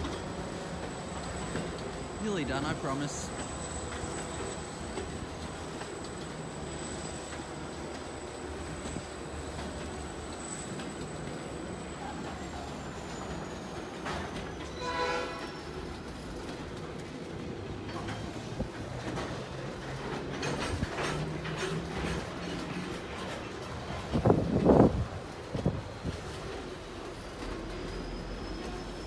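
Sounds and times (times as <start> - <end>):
train wheels rumbling on rail: 0.0 - 29.0
train horn blast: 14.7 - 15.7
wheel clacks: 15.5 - 28.8.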